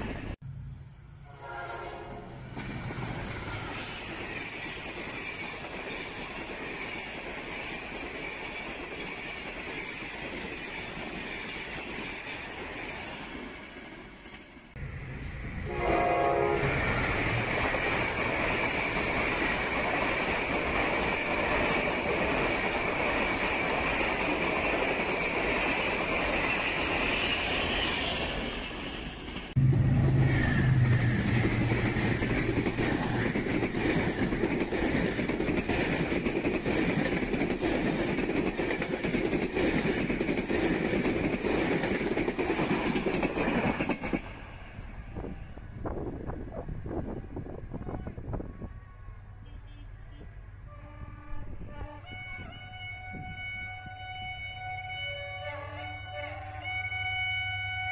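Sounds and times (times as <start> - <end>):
train rumbling past: 0.0 - 49.5
train horn blast: 1.2 - 2.4, 15.5 - 17.5, 47.8 - 57.9
locomotive engine drone: 29.6 - 33.8.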